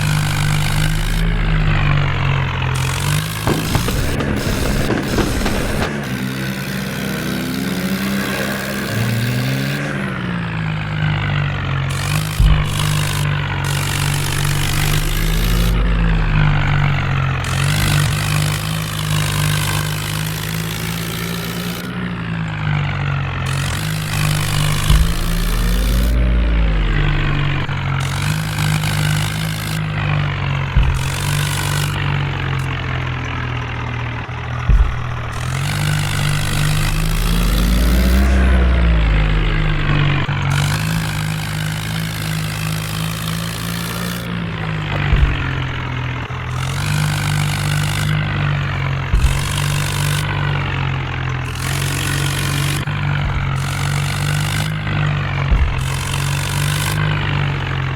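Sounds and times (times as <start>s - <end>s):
sharp clicks: 0.0s - 6.7s, 23.5s - 30.2s, 34.5s - 48.5s
tractor diesel engine revving: 0.0s - 57.9s.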